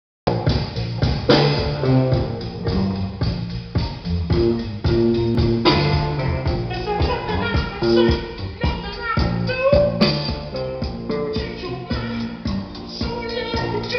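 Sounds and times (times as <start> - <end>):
rock music from speakers: 0.3 - 13.9.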